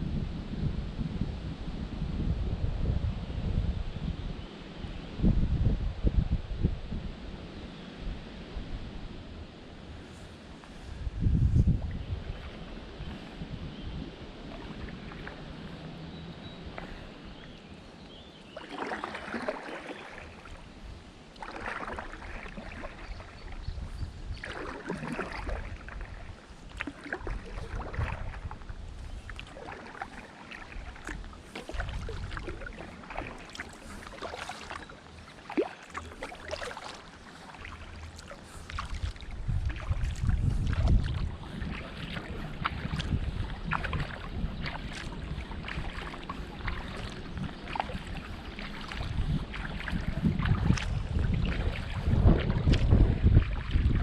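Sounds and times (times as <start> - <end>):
wind rumbling on microphone: 0.0 - 54.0
paddle splashing in water: 11.7 - 54.0
water trickling off paddle: 14.4 - 54.0.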